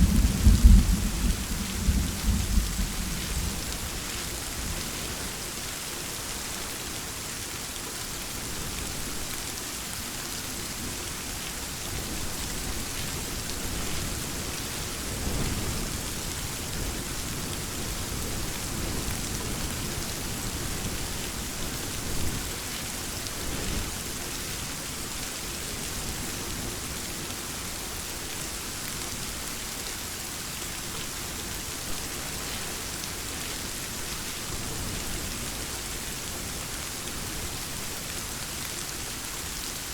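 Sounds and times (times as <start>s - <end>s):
distant thunder rumbles: 0.0s - 4.0s
heavy rain falling: 0.0s - 39.9s.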